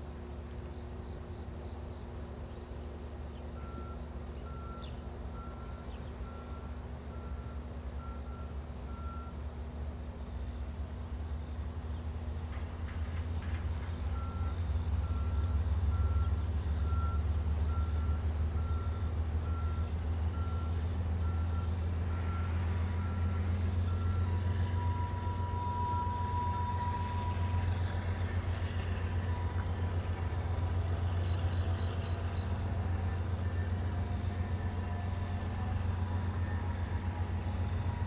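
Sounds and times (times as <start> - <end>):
slow train rumbling: 0.0 - 38.0
steady high tone: 23.2 - 30.2.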